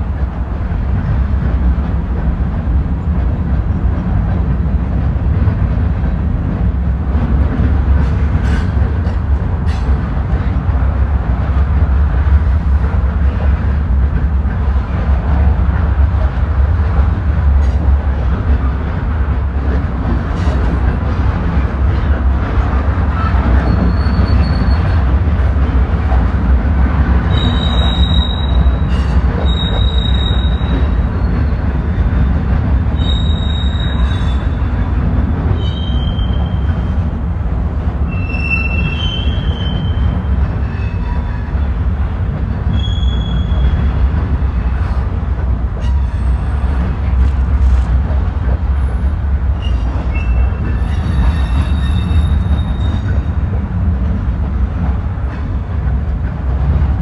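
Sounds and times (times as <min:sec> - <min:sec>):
train wheels rumbling on rail: 0:00.0 - 0:57.0
high-pitched wheel squeals: 0:23.6 - 0:25.0, 0:27.3 - 0:31.7, 0:33.0 - 0:34.5, 0:35.6 - 0:36.6, 0:38.1 - 0:41.5, 0:42.7 - 0:43.8, 0:49.6 - 0:53.2.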